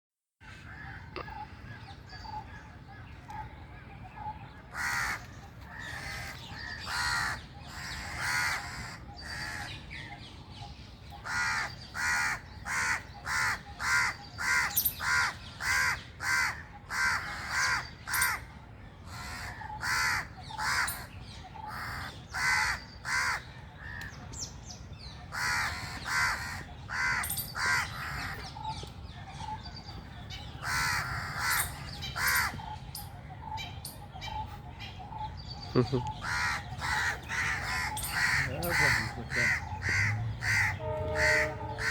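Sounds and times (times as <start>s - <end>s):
crow cawing: 4.7s - 9.7s, 11.2s - 18.4s, 19.1s - 21.0s, 21.7s - 24.1s, 25.3s - 28.3s, 30.6s - 32.6s, 36.1s - 41.9s.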